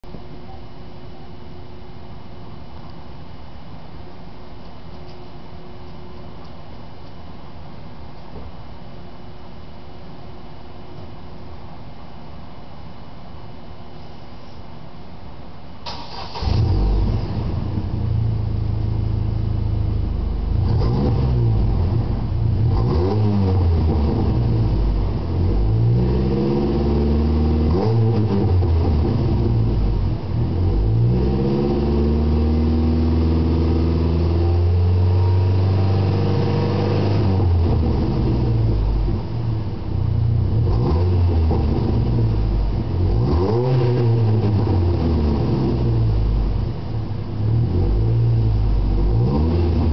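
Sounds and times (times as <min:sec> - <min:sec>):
car engine revving: 0:15.9 - 0:49.9.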